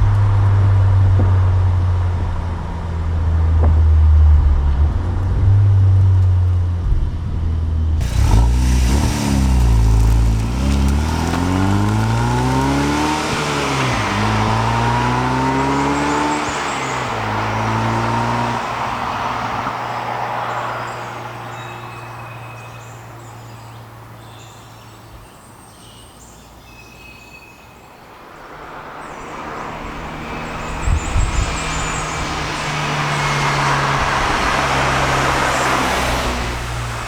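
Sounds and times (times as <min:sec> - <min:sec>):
low thumps: 0:00.0 - 0:12.3
car engine revving: 0:00.0 - 0:20.0, 0:29.1 - 0:37.0
road noise: 0:00.0 - 0:37.0.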